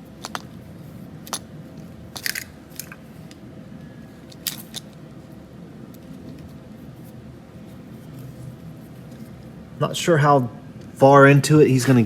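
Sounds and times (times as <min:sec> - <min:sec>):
wiring harness clicks and crackles: 0:00.0 - 0:03.4, 0:04.2 - 0:05.0.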